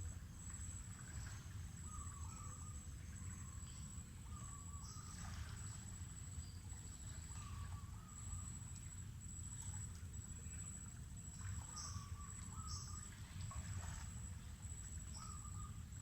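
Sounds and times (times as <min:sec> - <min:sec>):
bird warbling call: 0:01.8 - 0:03.6, 0:11.6 - 0:13.0, 0:15.1 - 0:15.8.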